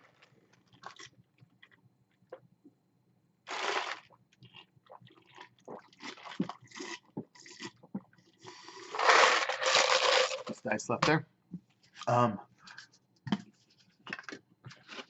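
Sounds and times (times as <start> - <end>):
chewing and crunching food: 0.0 - 2.5, 3.5 - 10.5, 13.9 - 15.0.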